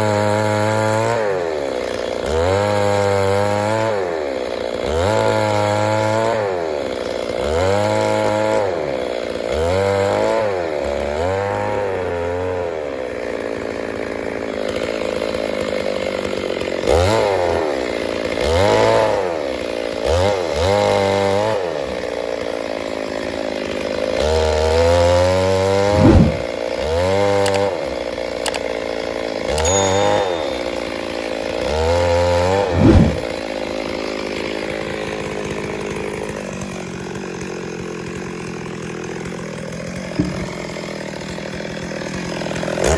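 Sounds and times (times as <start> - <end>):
chainsaw engine revving: 0.0 - 42.9.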